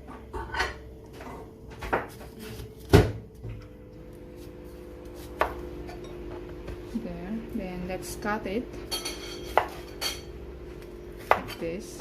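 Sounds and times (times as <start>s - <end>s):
knocks on kitchen counter: 2.9s - 3.2s.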